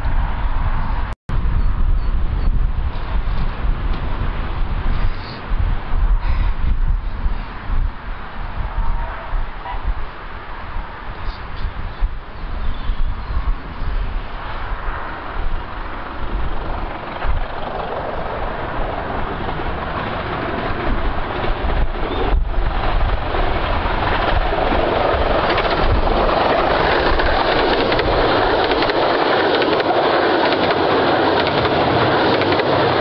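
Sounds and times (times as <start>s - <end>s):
miniature train running: 22.8s - 33.0s.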